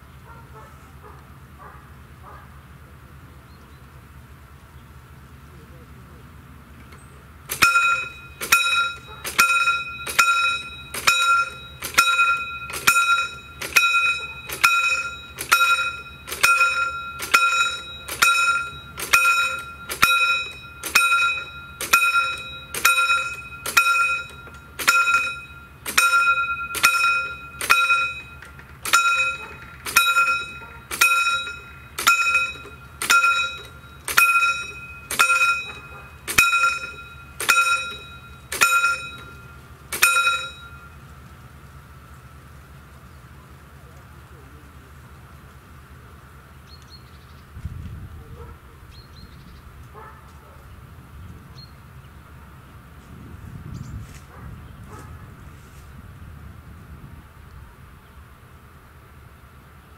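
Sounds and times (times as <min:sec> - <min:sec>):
level crossing bell ringing: 0:07.5 - 0:41.1.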